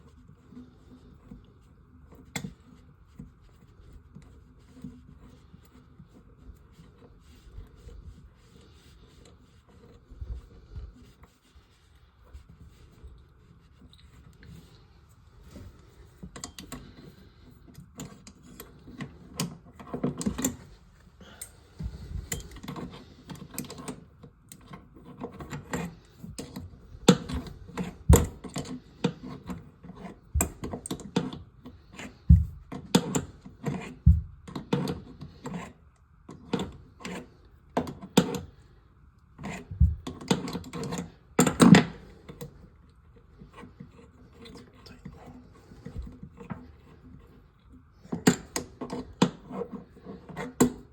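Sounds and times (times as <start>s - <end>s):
tools and parts clicking and tapping: 22.2s - 31.4s
heavy thumps: 28.0s - 28.4s, 32.3s - 32.7s, 34.1s - 34.4s, 39.7s - 40.1s.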